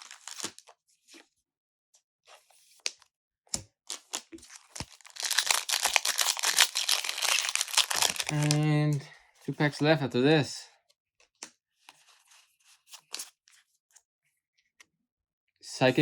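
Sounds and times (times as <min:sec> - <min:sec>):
cards clicking and rustling: 0:00.0 - 0:00.6, 0:03.9 - 0:09.0
foil wrapper tearing and crinkling: 0:00.0 - 0:00.7, 0:03.9 - 0:08.6.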